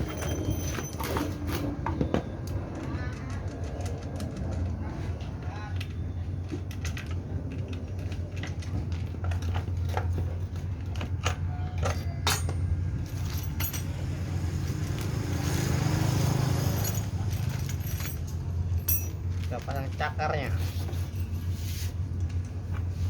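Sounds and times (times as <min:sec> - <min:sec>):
small metal parts clinking: 0:06.7 - 0:15.6, 0:16.4 - 0:21.6.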